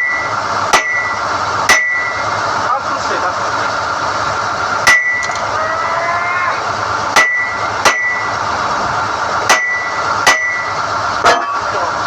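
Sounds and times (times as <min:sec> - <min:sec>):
hammer ringing on steel rods: 0:00.0 - 0:02.2, 0:04.9 - 0:05.3, 0:07.2 - 0:08.3, 0:09.5 - 0:10.7
drilling rig running: 0:00.0 - 0:12.0.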